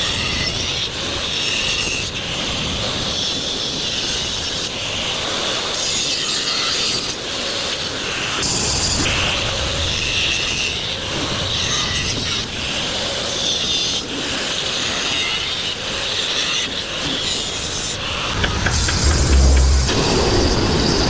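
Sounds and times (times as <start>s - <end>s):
rasping on metal tube: 18.2s - 20.0s.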